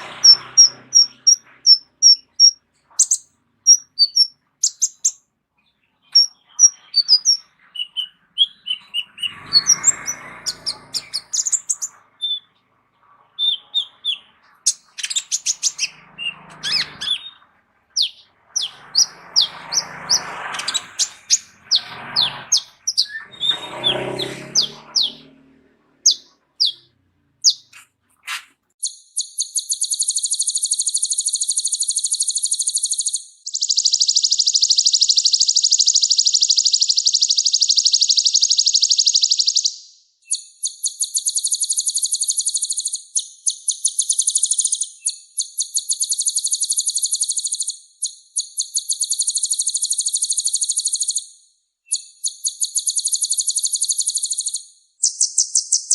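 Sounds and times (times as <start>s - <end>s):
sunbird singing high chirps and trills: 0.0s - 27.8s, 28.8s - 55.9s.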